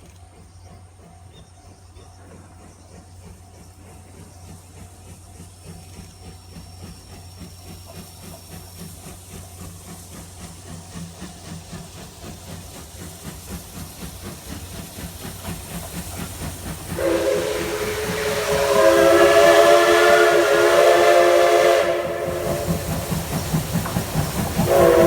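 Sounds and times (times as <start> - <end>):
steam locomotive chuffing: 0.0 - 25.0
hissing steam: 2.1 - 25.0
steam whistle blowing: 17.0 - 23.6, 24.4 - 25.0.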